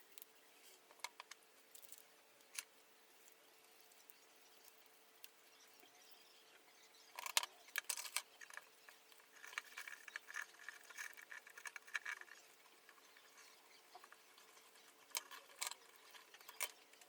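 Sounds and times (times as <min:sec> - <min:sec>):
small metal parts rattling: 0:07.2 - 0:17.0.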